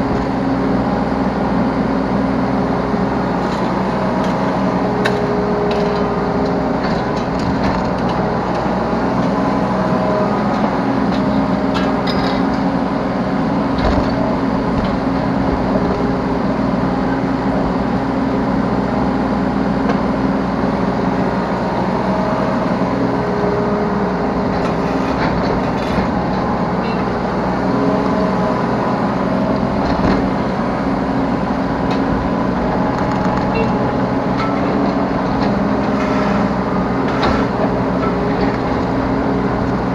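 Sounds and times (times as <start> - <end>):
excavator diesel engine running: 0.0 - 39.9
hydraulic whine: 22.0 - 39.9.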